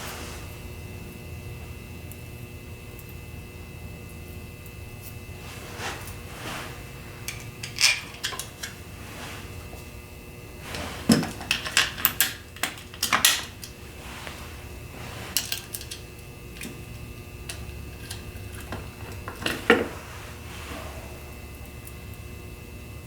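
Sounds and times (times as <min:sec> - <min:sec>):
metal hardware clinking: 0:07.2 - 0:08.9, 0:11.0 - 0:14.0, 0:15.1 - 0:16.8.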